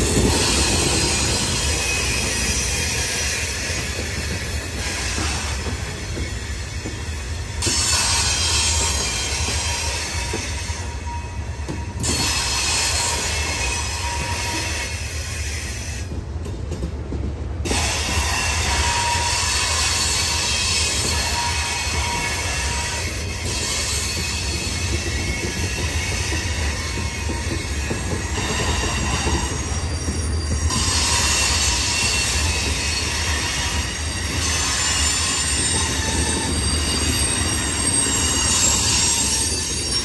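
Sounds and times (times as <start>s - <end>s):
freight cars rumbling on rails: 0.0s - 40.0s
high-pitched wheel squeal: 18.4s - 40.0s.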